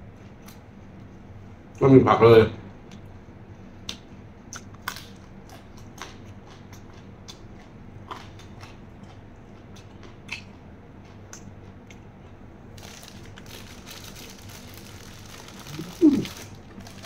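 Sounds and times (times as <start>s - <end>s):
person crunching raw vegetable: 12.7s - 17.0s.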